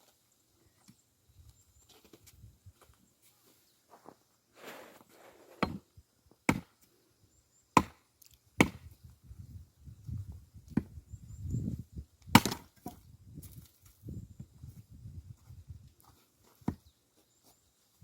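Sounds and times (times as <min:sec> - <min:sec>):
axe chopping firewood: 0:05.5 - 0:05.8, 0:06.4 - 0:06.8, 0:07.8 - 0:08.9, 0:12.3 - 0:13.0.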